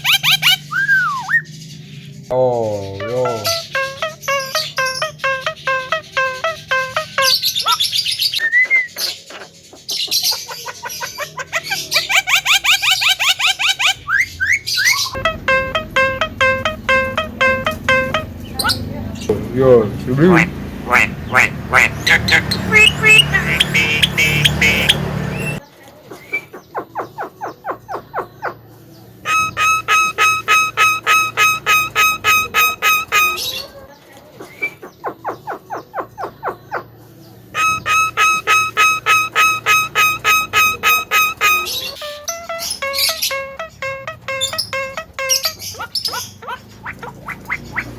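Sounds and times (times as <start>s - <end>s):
myna bird chirping and whistling: 0.0s - 1.8s, 2.7s - 18.9s, 20.9s - 25.6s, 29.2s - 33.7s, 37.6s - 47.9s
myna harsh repeated note: 15.2s - 18.6s.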